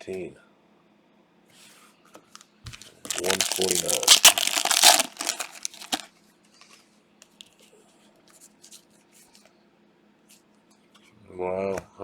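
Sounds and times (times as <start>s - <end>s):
brief crinkle: 2.7s - 6.1s
trading cards clicking and rustling: 2.7s - 6.1s.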